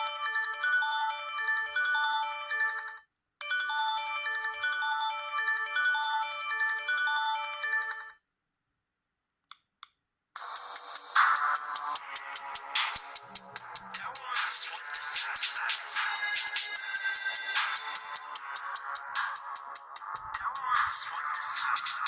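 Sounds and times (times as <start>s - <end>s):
polyphonic phone ringtone melody: 0.0s - 8.1s
pulsing phone ringtone: 0.0s - 8.2s.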